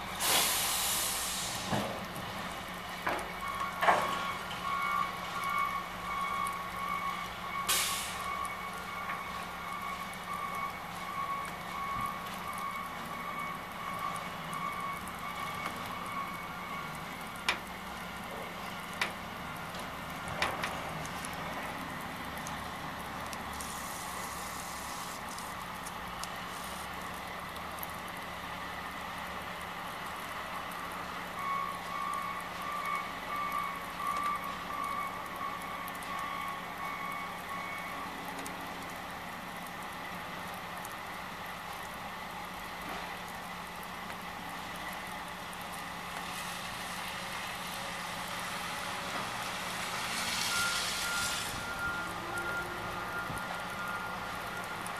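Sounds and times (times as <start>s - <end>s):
vehicle backup alarm beeping: 2.6s - 25.5s, 31.2s - 39.1s, 49.1s - 54.9s.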